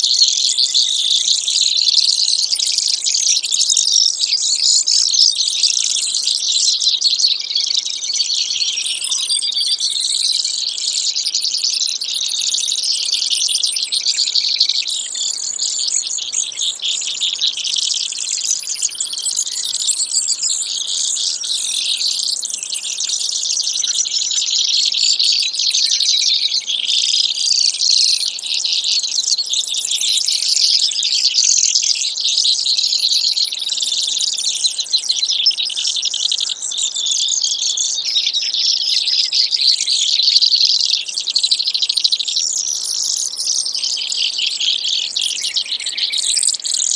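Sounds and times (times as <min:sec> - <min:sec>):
sparrow song trills: 0:00.0 - 0:46.9.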